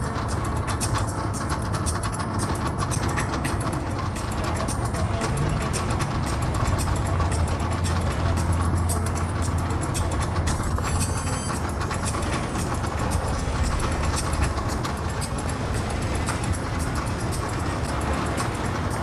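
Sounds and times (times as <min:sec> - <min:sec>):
clicks and rattles: 0:00.0 - 0:19.0
engines droning: 0:00.0 - 0:19.0
short high squeal: 0:10.5 - 0:18.7.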